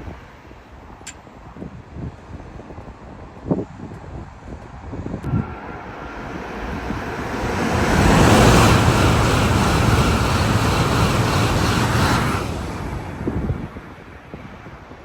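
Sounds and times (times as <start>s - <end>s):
train passing at speed: 4.7s - 14.8s.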